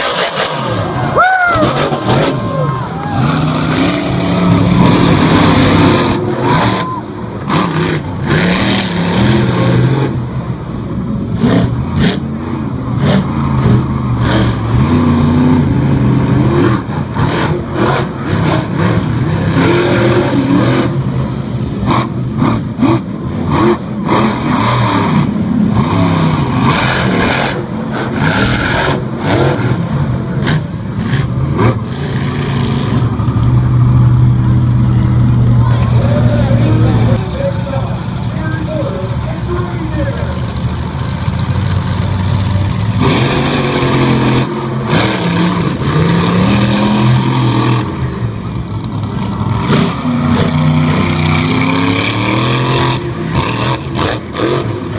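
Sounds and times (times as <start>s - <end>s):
monster truck engines revving: 0.0s - 54.9s.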